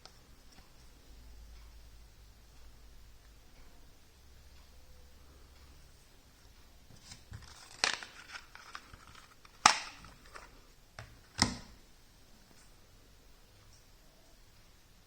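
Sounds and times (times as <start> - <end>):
packaging rustling: 7.0 - 10.6
phone case clicks: 9.6 - 10.2.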